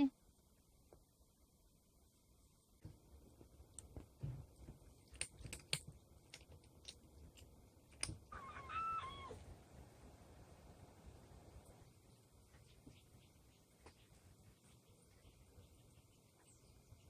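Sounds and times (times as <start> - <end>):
cat meowing: 8.3 - 9.4.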